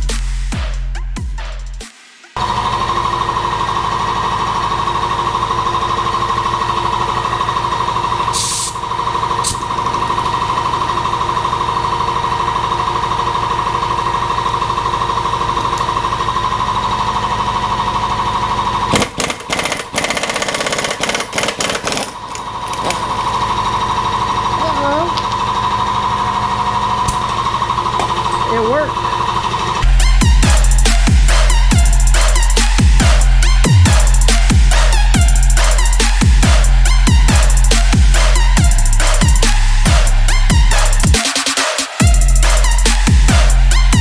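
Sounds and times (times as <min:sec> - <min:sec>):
pneumatic impact tool hammering: 0:18.9 - 0:23.1.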